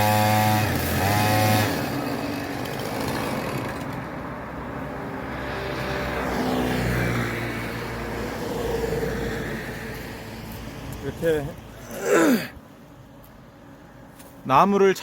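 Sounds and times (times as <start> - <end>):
chainsaw engine at low revs: 0.0 - 4.0.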